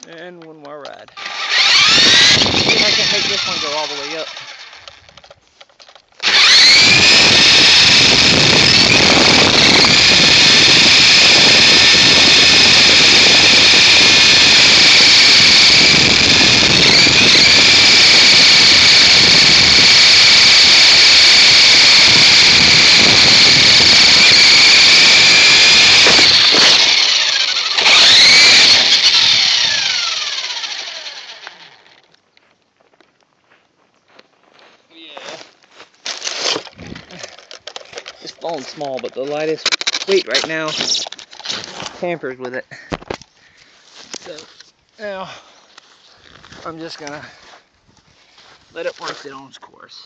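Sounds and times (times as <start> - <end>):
rc helicopter motor whining: 1.1 - 5.2, 6.2 - 32.1.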